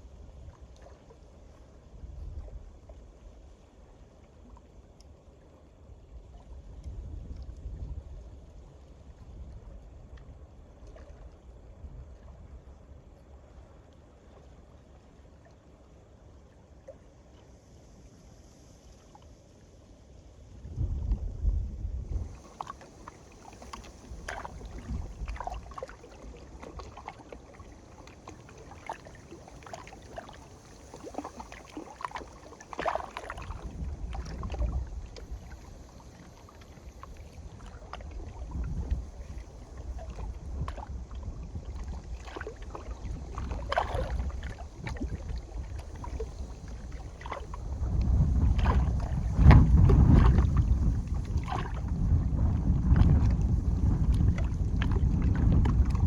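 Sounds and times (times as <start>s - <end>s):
wind gusting on microphone: 20.6s - 22.6s, 24.0s - 25.7s, 37.5s - 42.2s, 42.9s - 56.0s
waves lapping on shore: 22.2s - 56.0s.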